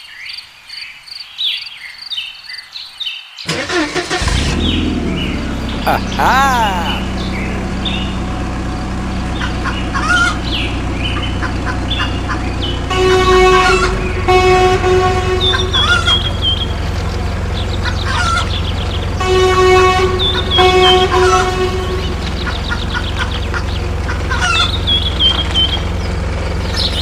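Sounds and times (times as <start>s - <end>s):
vehicle engine running: 4.2s - 5.9s, 7.0s - 27.0s
horn blasts: 12.9s - 16.1s, 19.2s - 22.4s.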